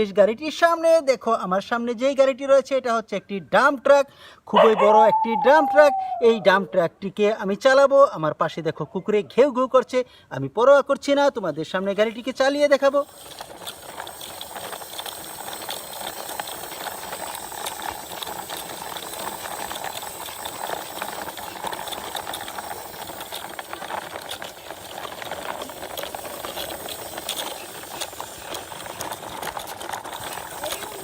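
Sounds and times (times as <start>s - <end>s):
toy truck wheels rolling: 11.8s - 31.0s.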